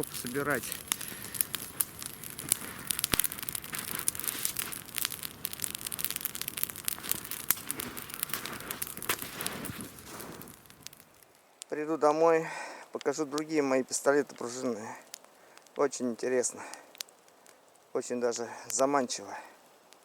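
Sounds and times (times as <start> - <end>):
loud pops: 0.0 - 11.4
dry wood crackling and snapping: 0.0 - 20.0.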